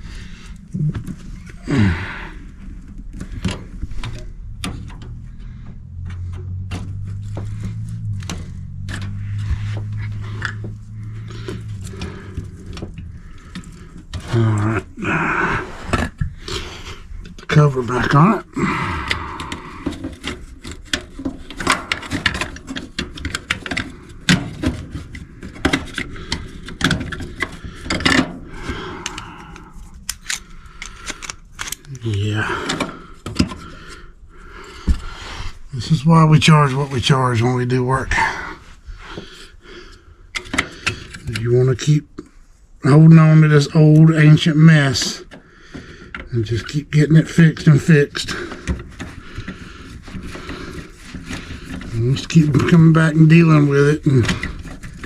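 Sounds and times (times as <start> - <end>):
sharp clicks: 28.9 - 32.2
hand tools clicking and tapping: 28.9 - 32.8.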